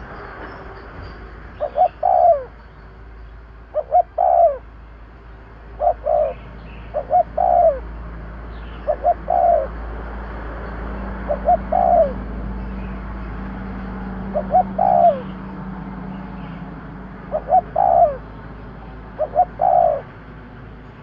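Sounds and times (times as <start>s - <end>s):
dove cooing: 1.6s - 2.5s, 3.7s - 4.6s, 5.8s - 7.9s, 8.7s - 9.8s, 11.2s - 12.3s, 14.2s - 15.4s, 17.2s - 18.3s, 19.0s - 20.1s.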